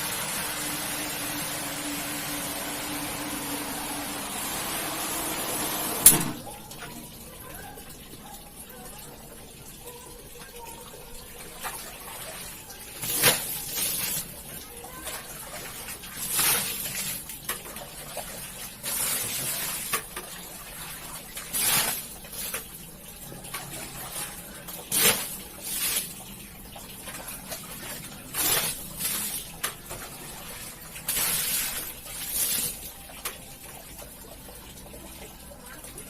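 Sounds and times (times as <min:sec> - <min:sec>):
water splashing and sloshing: 0:09.0 - 0:36.0.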